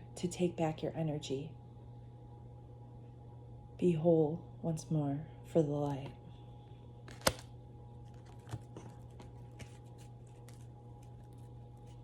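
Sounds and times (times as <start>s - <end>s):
low steady hum: 0.0s - 12.0s
cards being shuffled: 7.1s - 12.0s.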